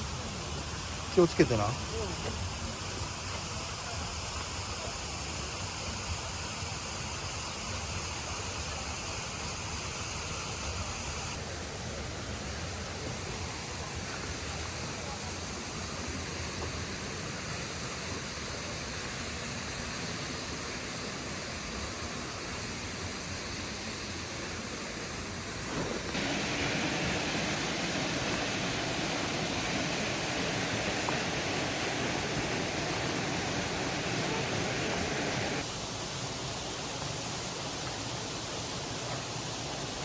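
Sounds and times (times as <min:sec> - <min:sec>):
steady outdoor rushing noise: 0:24.1 - 0:37.6.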